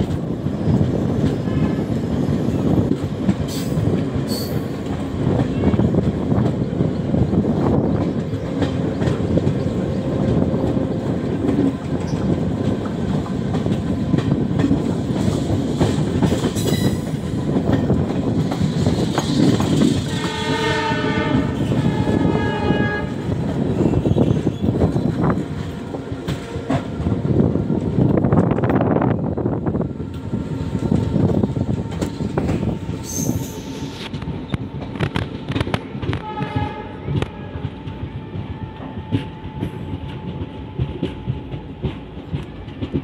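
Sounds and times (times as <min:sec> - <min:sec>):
train wheels rumbling on rails: 0:00.0 - 0:43.0
train horn: 0:20.0 - 0:23.9, 0:35.0 - 0:41.9.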